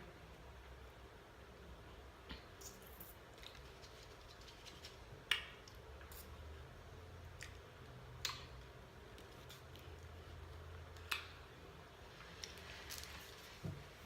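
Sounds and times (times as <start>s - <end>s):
eating clicks and mouth smacks: 3.4s - 6.3s, 7.3s - 9.9s, 10.9s - 11.4s.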